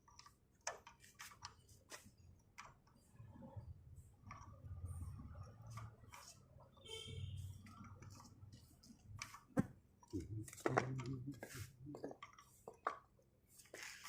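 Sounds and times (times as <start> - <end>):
tools and metal parts clicking: 0.0 - 1.6.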